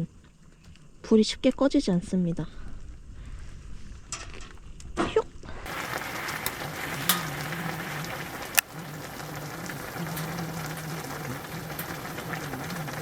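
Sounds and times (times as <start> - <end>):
fire crackling: 5.6 - 13.0
sharp pops of fire: 8.4 - 8.9.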